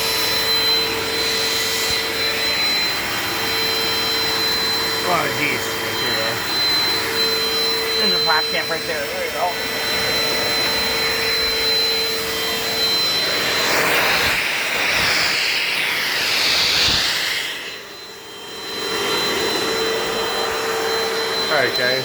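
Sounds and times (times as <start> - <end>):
rushing noise shifting in pitch: 0.0 - 21.6
vacuum cleaner whine: 0.0 - 22.0.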